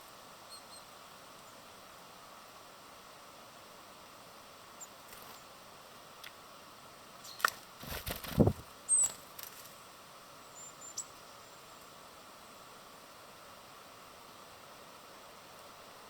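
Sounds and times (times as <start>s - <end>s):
steady background hiss: 0.0s - 16.0s
bird wing flaps: 7.4s - 9.8s.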